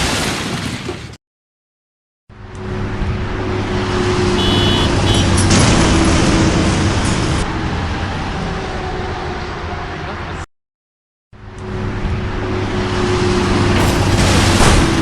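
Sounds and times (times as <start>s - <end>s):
road noise: 2.3s - 10.5s, 11.4s - 15.0s.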